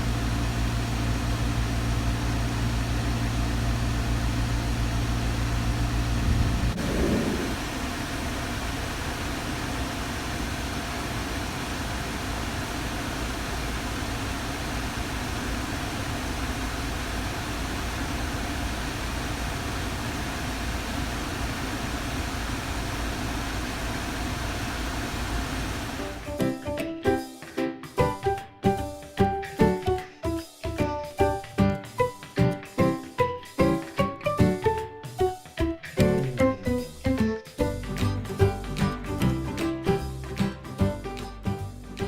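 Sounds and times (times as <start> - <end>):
faint hum: 0.0 - 26.2
air rushing from vents: 4.0 - 26.3
music: 26.2 - 42.0.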